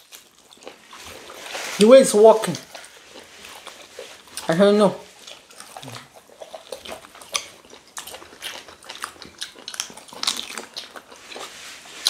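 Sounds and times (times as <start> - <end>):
person chewing food: 0.0 - 12.0
mouth smacking: 2.5 - 11.6.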